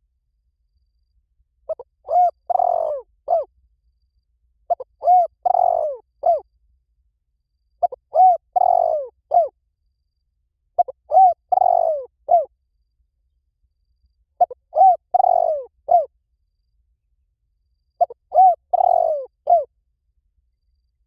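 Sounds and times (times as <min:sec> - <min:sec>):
dove cooing: 0:01.7 - 0:03.5, 0:04.7 - 0:06.4, 0:07.8 - 0:09.5, 0:10.8 - 0:12.5, 0:14.4 - 0:16.1, 0:18.0 - 0:19.7.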